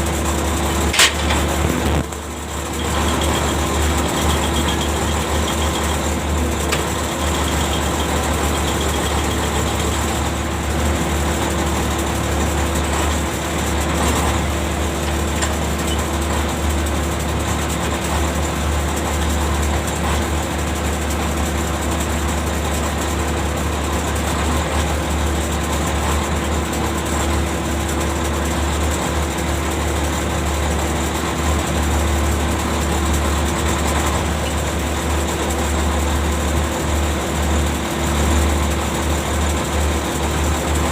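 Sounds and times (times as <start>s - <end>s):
ship engine drone: 0.0s - 15.0s.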